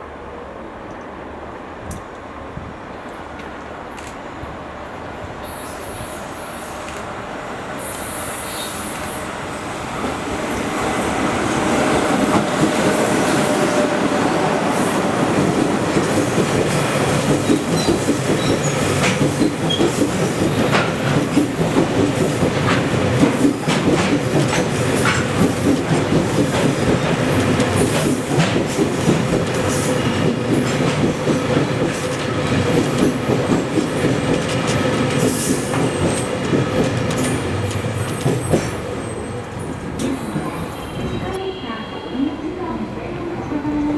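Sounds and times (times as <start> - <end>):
freight train wheels clattering: 11.3 - 41.4.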